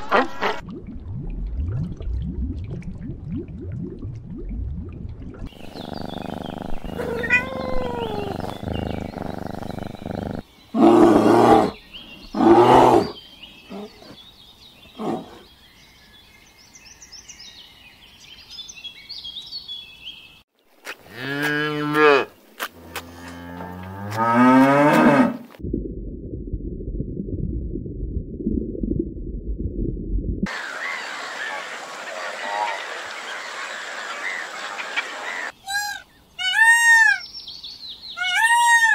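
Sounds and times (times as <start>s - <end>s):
animal growling: 5.5s - 14.2s, 15.0s - 15.4s
birds chirping: 5.5s - 24.8s, 30.5s - 38.9s.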